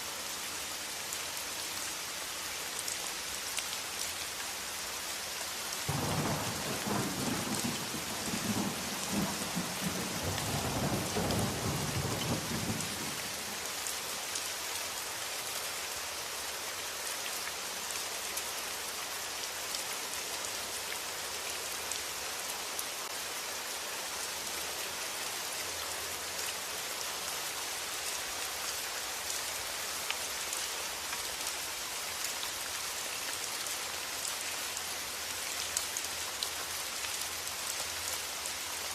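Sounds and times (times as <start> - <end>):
steady rain: 0.0 - 38.9
thunder rumbling: 5.9 - 13.2.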